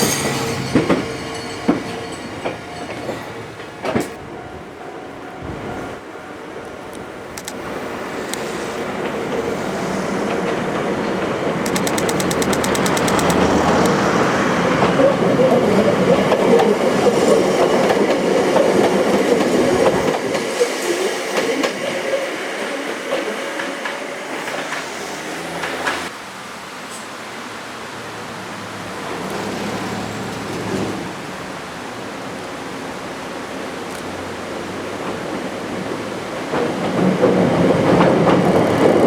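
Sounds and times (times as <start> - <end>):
electric train passing: 0.0 - 39.0
rapid high ticks: 11.6 - 14.2.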